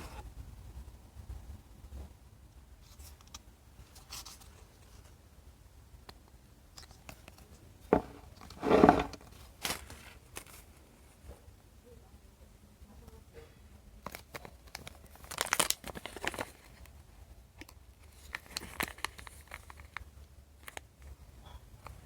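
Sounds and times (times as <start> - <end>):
packaging rustling: 14.1 - 16.7
packaging crinkling: 14.1 - 16.8, 18.1 - 20.0.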